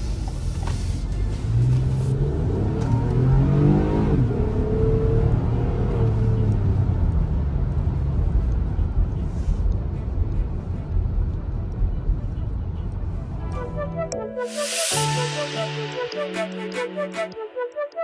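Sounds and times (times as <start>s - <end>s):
road noise: 0.0s - 18.0s
car engine accelerating: 1.1s - 8.2s.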